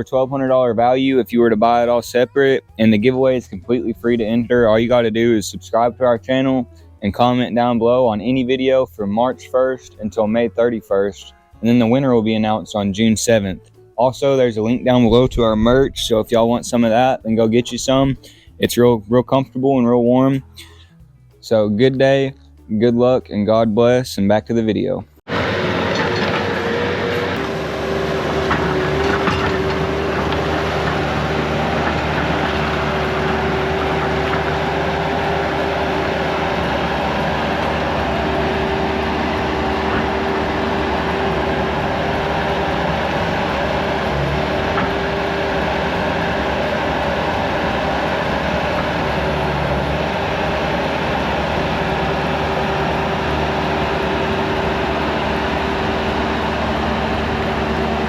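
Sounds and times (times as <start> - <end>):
skid steer engine running: 25.3 - 58.0.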